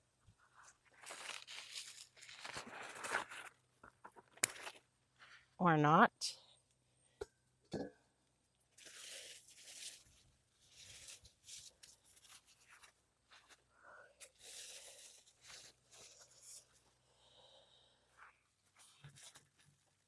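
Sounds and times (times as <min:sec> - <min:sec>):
plants rustling and crackling: 0:00.9 - 0:04.8.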